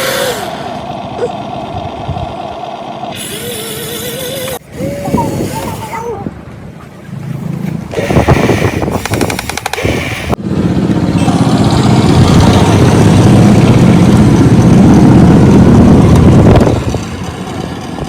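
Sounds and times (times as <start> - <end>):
toy excavator motor and pump: 0.0 - 6.0, 7.9 - 10.4.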